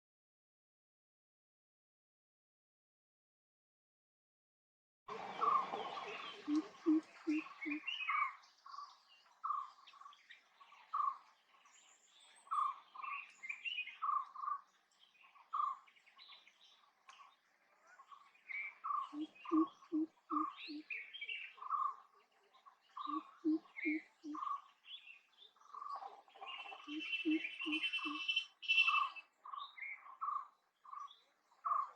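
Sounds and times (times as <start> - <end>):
deep resonant bird call: 5.1 - 8.3, 18.9 - 21.0, 23.0 - 24.6, 25.8 - 29.3
birds whistling: 5.2 - 9.7, 18.6 - 22.0, 23.0 - 31.1
high bird chirps: 18.7 - 22.0, 22.9 - 24.6, 25.6 - 31.9.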